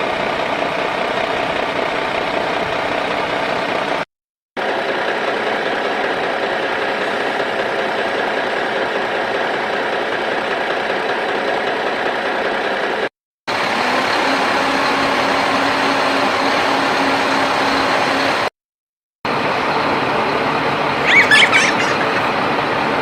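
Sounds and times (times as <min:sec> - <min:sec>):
high wavering squeak: 0:21.0 - 0:22.3.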